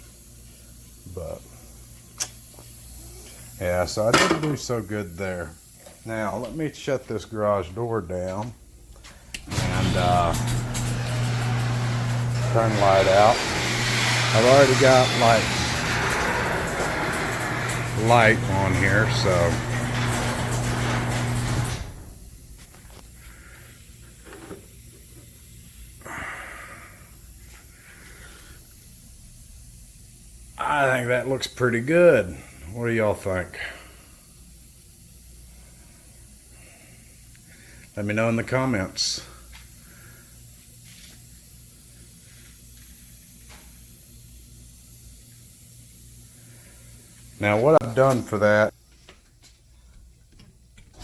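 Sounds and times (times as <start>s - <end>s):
even hiss: 0.0s - 8.2s, 9.3s - 19.8s
low electrical hum: 0.0s - 51.0s
garage door opener motor humming: 9.4s - 23.0s.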